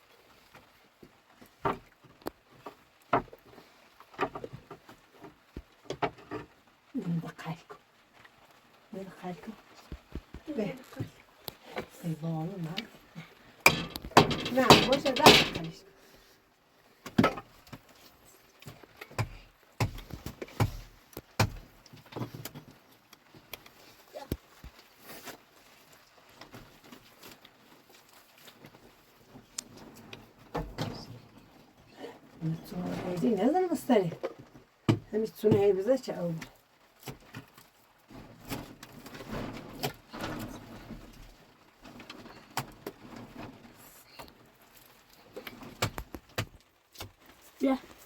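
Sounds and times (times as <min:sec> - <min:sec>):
sharp knocks and thuds: 0:13.6 - 0:15.9, 0:19.1 - 0:21.7
handwork knocks and scrapes: 0:13.7 - 0:15.9.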